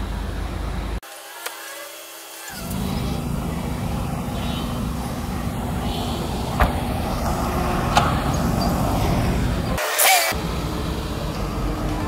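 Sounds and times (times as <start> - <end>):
car engine idling: 2.5 - 9.8, 10.4 - 12.0.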